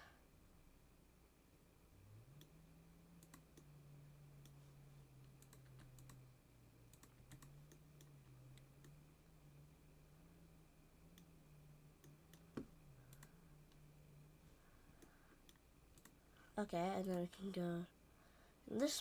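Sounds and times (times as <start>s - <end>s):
faint low hum: 0.0s - 19.0s
computer keyboard and mouse clicks: 3.2s - 3.7s, 5.3s - 6.2s, 6.9s - 9.0s, 12.0s - 13.4s, 15.0s - 16.2s.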